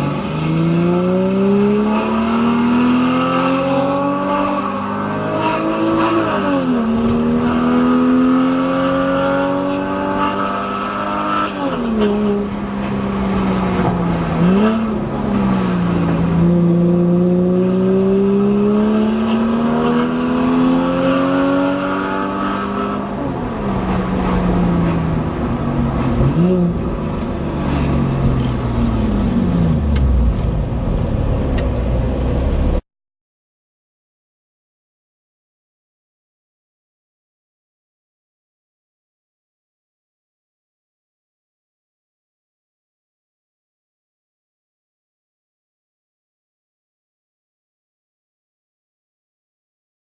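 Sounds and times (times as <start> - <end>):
sports car engine accelerating: 0.0 - 32.8.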